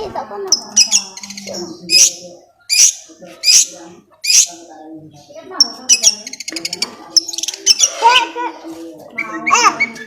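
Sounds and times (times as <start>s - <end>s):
quiet talk: 0.0s - 10.0s
bird harsh rasping calls: 0.6s - 4.6s, 5.6s - 8.4s.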